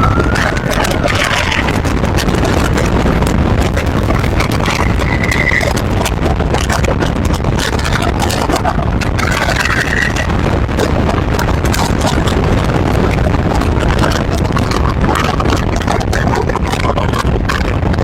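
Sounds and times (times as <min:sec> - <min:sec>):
faint high tone: 0:00.0 - 0:01.8
car road and wind noise: 0:00.0 - 0:18.0.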